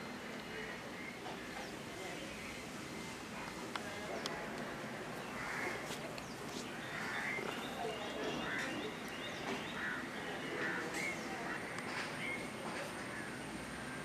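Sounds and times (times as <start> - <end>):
steady background noise: 0.0 - 14.0
birds calling: 5.0 - 14.0.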